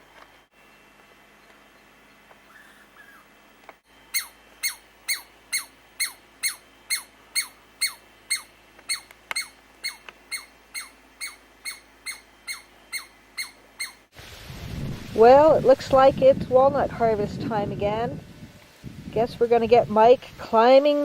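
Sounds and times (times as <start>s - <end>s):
squirrel squeaky calls: 2.4s - 3.3s, 4.1s - 14.1s.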